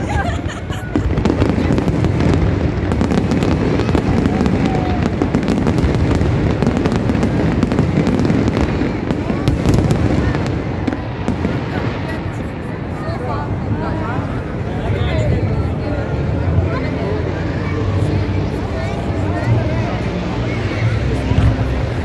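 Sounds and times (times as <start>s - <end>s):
low fireworks rumble: 0.0s - 22.0s
fireworks cracks and pops: 0.8s - 12.5s.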